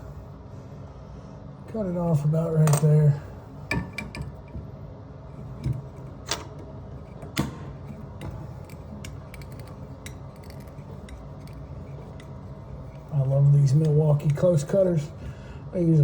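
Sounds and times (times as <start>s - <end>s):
tubing cutter scraping pipe: 7.8s - 14.5s.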